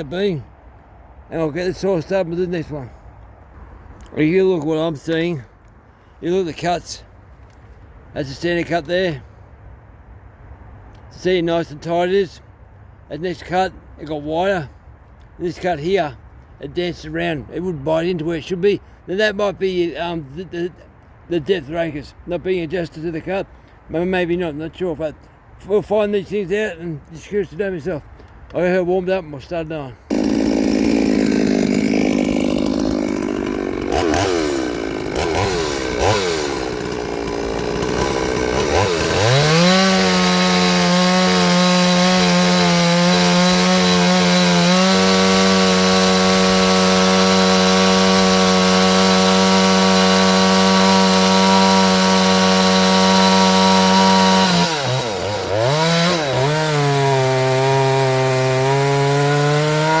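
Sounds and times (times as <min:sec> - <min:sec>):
chainsaw revving: 0:30.1 - 1:00.0.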